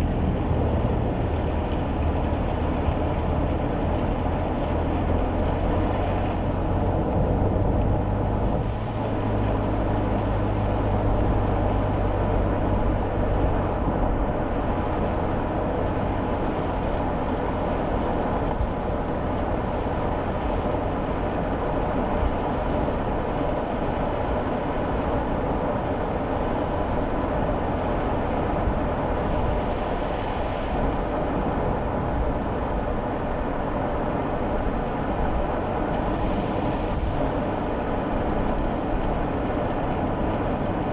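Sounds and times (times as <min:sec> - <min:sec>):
low engine hum: 0:00.0 - 0:40.9
road noise inside car: 0:00.0 - 0:40.9.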